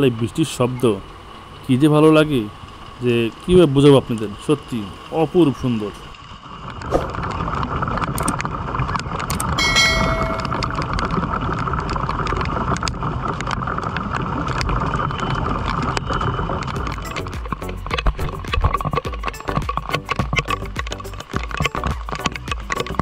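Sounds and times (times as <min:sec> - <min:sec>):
rain on a tin roof: 0:00.0 - 0:09.8, 0:10.6 - 0:23.0
brief high-pitched tone: 0:09.6 - 0:11.1.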